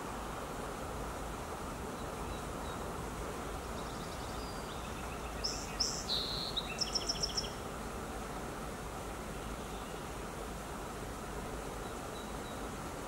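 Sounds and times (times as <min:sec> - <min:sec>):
steady low background noise: 0:00.0 - 0:13.0
bird chirping: 0:03.8 - 0:07.6.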